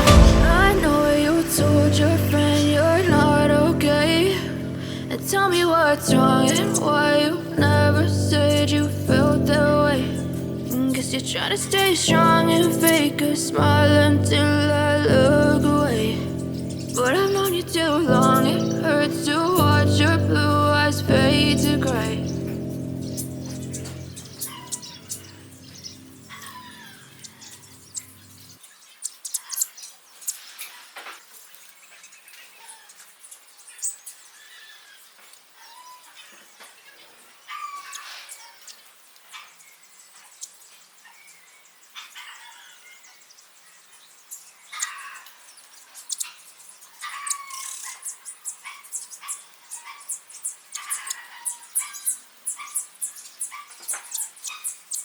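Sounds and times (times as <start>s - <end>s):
background music: 0.0s - 28.0s
small birds chirping: 4.8s - 55.0s.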